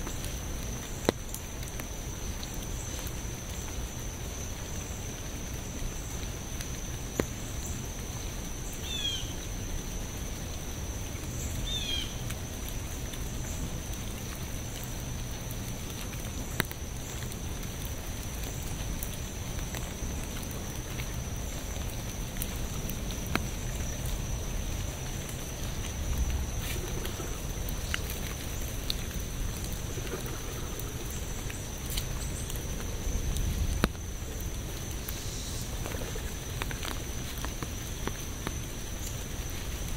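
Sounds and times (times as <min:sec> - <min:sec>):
raindrops ticking close by: 0:00.0 - 0:39.9
steady rain falling: 0:00.0 - 0:39.9.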